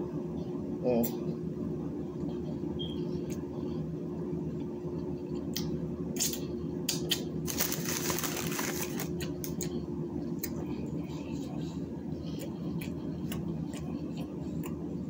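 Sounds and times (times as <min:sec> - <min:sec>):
low room hum: 0:00.0 - 0:15.0
mouth clicks and smacks: 0:05.4 - 0:07.3, 0:12.2 - 0:14.8
food wrapper paper rustling: 0:07.4 - 0:09.6.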